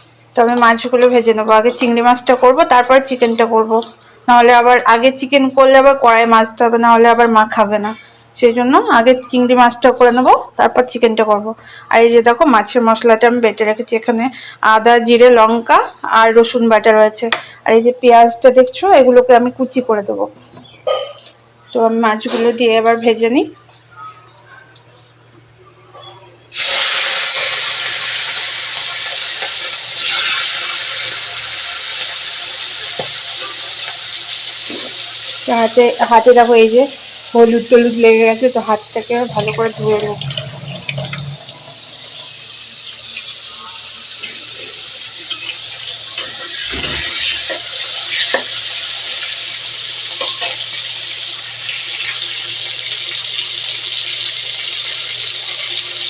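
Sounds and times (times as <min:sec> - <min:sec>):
prawns sizzling in hot oil: 0:26.5 - 0:56.0.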